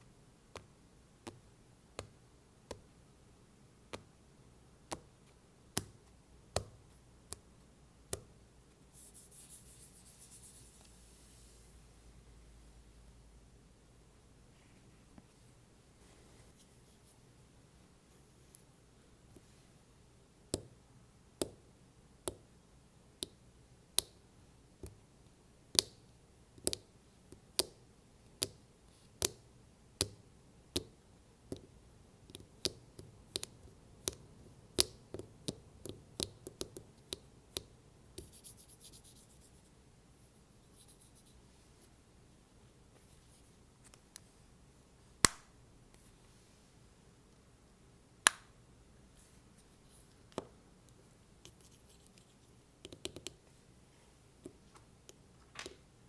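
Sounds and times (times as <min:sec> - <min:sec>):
scratching rub on plastic: 0:09.0 - 0:11.6.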